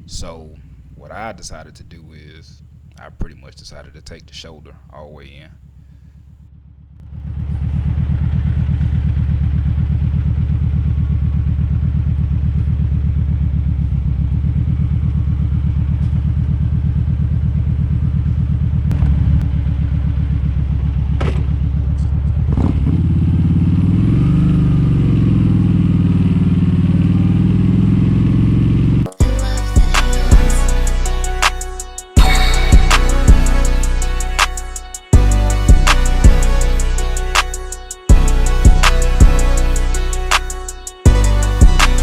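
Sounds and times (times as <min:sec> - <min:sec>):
motorcycle engine running: 0:00.0 - 0:42.0
music: 0:29.1 - 0:42.0.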